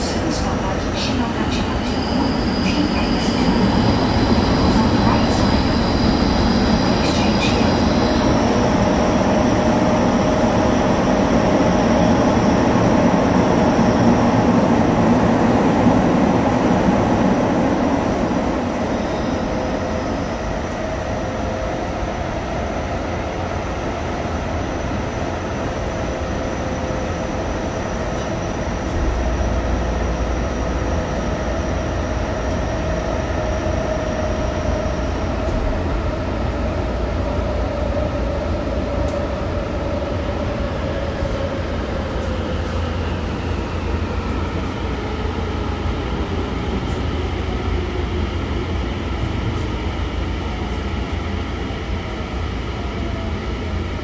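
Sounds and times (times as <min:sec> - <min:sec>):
train wheels rumbling: 0:00.0 - 0:20.0
high whine: 0:00.0 - 0:20.9.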